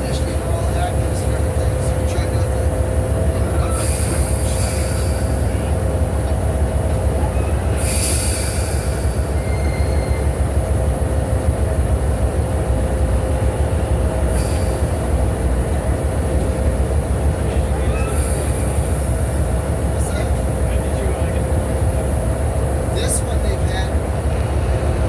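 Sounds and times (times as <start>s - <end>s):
train hisses: 0.0s - 25.0s
train rumbling along track: 0.0s - 25.0s
train wheel squeals: 3.3s - 11.2s, 14.2s - 15.3s, 17.8s - 20.3s.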